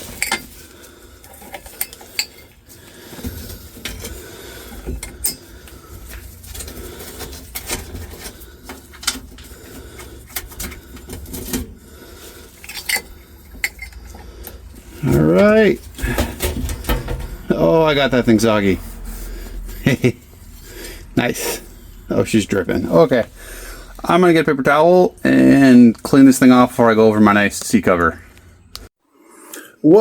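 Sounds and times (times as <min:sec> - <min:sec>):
metal screws clinking: 0:00.0 - 0:00.6, 0:01.2 - 0:02.6, 0:04.8 - 0:05.6, 0:12.5 - 0:14.2.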